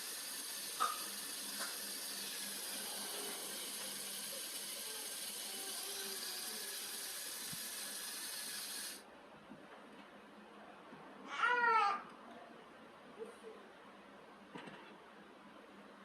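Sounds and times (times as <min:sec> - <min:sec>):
high-pitched hiss: 0:00.0 - 0:09.0.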